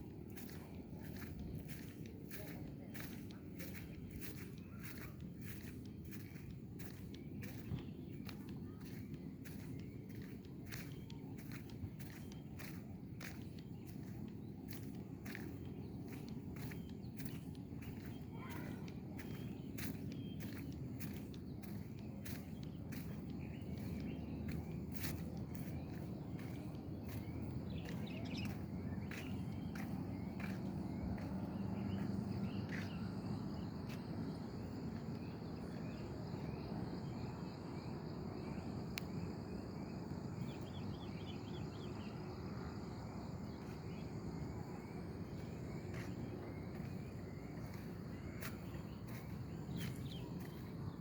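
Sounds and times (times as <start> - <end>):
bird chirps: 0.3 - 37.2
insects trilling: 4.8 - 51.0.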